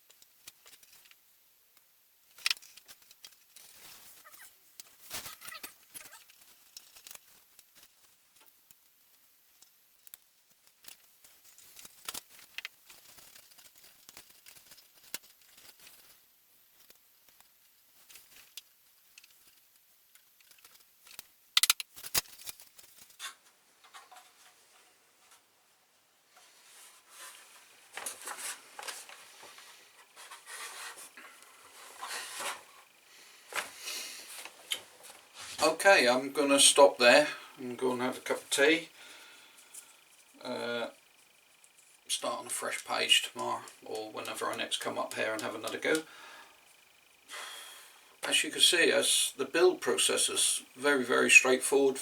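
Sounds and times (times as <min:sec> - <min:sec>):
wooden parts clicking and tapping: 0:18.1 - 0:25.5
wooden parts rubbing and scraping: 0:22.4 - 0:25.5, 0:26.4 - 0:36.1.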